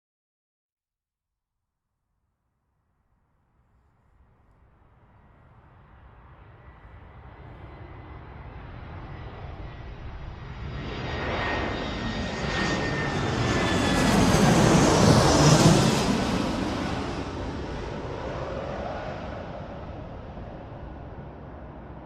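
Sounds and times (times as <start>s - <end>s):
jets flying past: 5.6s - 22.0s.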